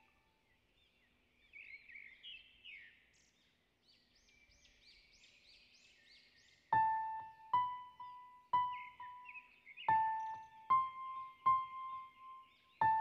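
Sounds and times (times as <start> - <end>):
wild birds chirping: 0.0 - 13.0
piano background music: 6.8 - 13.0.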